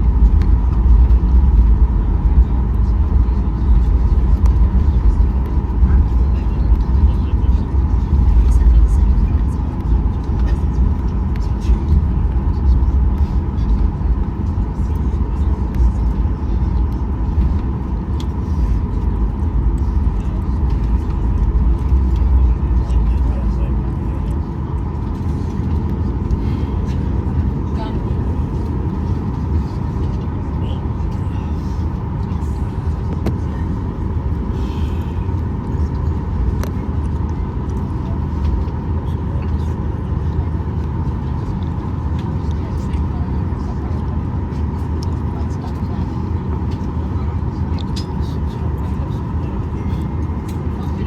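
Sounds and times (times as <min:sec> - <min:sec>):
aircraft cabin low rumble: 0:00.0 - 0:51.0
thin steady whine: 0:00.0 - 0:51.0.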